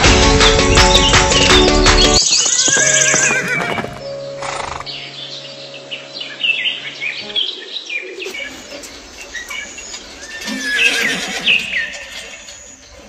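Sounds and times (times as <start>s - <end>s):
horse neighing: 2.5s - 4.9s, 10.1s - 12.6s.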